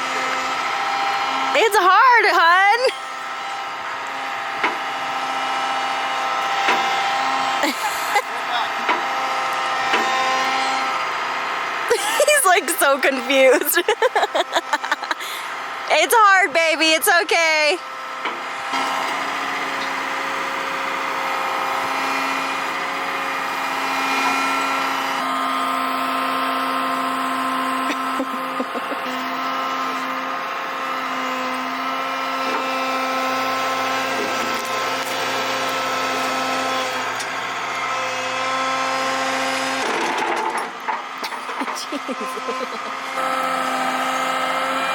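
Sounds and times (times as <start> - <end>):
excavator engine and hydraulics whine: 0.0 - 44.9.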